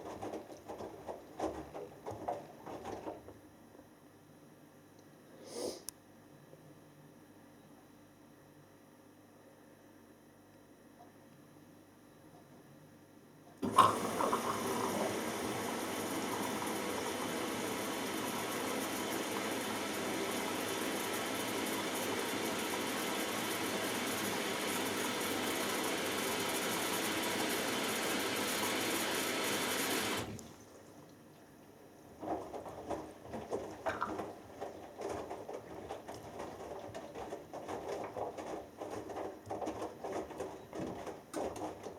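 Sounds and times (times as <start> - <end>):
water rushing into washing machine: 0.0 - 3.3, 13.6 - 31.1, 32.0 - 41.9.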